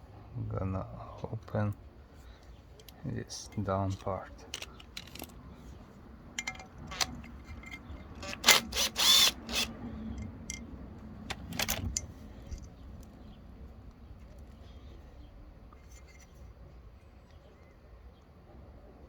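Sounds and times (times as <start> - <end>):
metal tools clinking and clanking: 3.4 - 5.4, 6.4 - 8.4.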